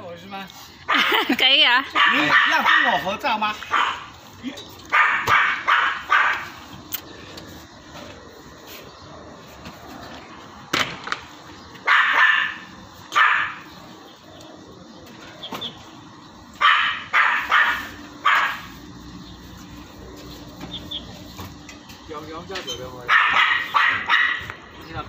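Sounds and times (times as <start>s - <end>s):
dog barking: 1.9s - 4.1s, 4.9s - 6.6s, 11.8s - 13.7s, 16.6s - 18.8s, 23.0s - 24.6s.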